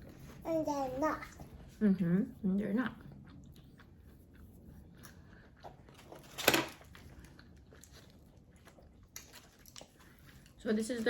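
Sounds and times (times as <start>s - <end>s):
chewing crunchy crackers: 3.0s - 11.0s.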